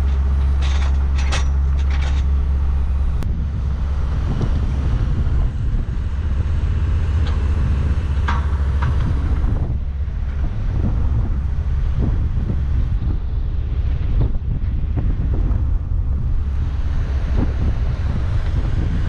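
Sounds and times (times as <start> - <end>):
tractor engine running: 0.0 - 19.0
wind buffeting microphone: 0.0 - 19.0.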